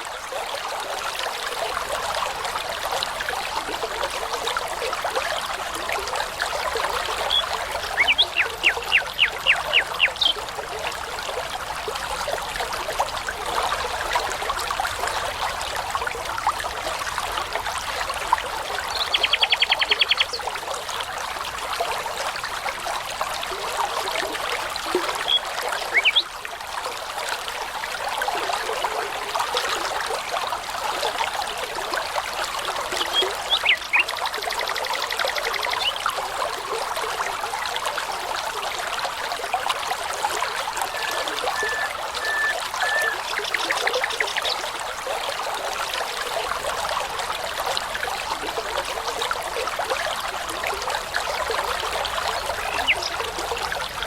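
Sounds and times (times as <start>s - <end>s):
brook babbling: 0.0s - 54.0s
songbird singing: 7.2s - 10.4s, 18.8s - 20.4s, 25.1s - 26.3s, 33.0s - 34.1s, 40.8s - 44.6s, 52.5s - 53.2s.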